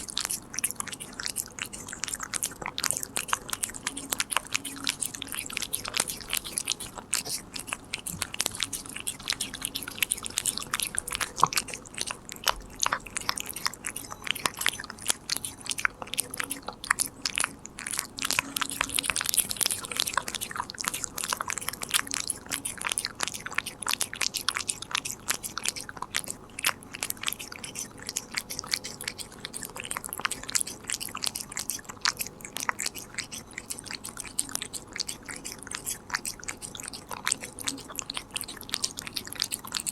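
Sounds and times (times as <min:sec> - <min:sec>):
cat crunching a treat: 0:00.0 - 0:39.9.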